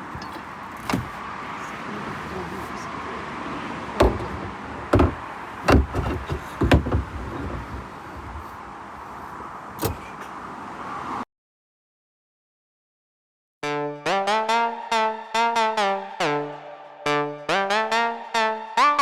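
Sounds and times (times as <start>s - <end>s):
sharp knocks and thumps: 0.0s - 1.3s, 4.0s - 8.6s
steady background noise: 0.0s - 11.2s.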